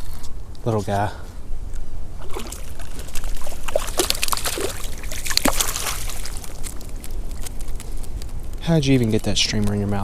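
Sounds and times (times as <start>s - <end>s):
water splashing and dripping: 2.2s - 7.5s.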